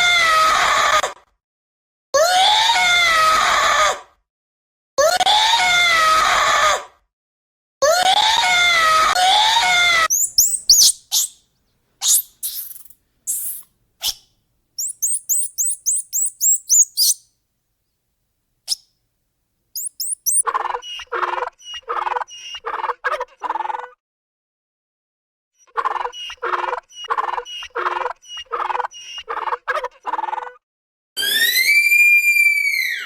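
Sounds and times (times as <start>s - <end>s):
bird chirps: 10.1s - 11.4s, 12.0s - 14.2s, 14.8s - 17.2s, 19.8s - 20.4s
short pulsed lower calls: 10.1s - 11.4s, 12.0s - 13.6s, 14.8s - 17.2s, 19.8s - 20.4s
wavering animal call: 10.1s - 11.4s, 12.0s - 14.2s, 14.8s - 17.2s, 19.8s - 20.4s.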